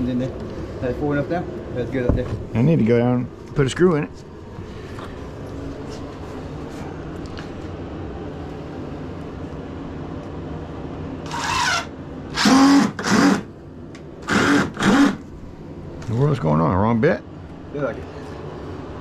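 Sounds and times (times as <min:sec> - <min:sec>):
steady low hum: 0:00.0 - 0:19.0
cordless drill motor whining: 0:11.2 - 0:13.5, 0:14.2 - 0:15.2.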